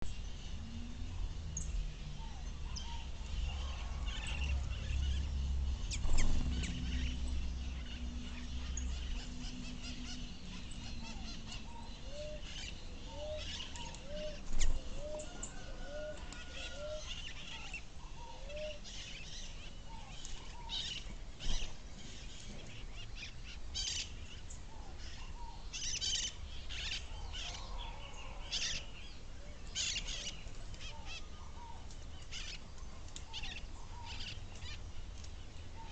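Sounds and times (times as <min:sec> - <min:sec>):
birds chirping: 0:00.0 - 0:35.9.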